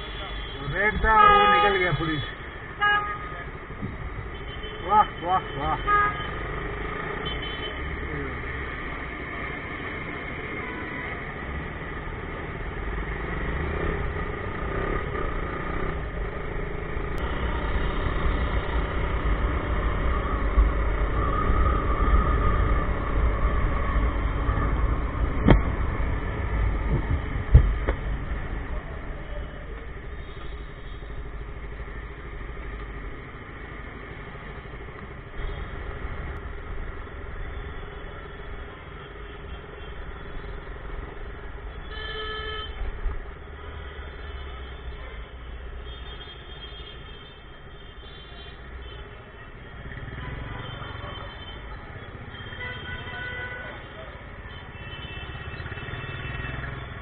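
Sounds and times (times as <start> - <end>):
road noise: 0.0 - 57.0
motorcycle engine: 11.8 - 28.7.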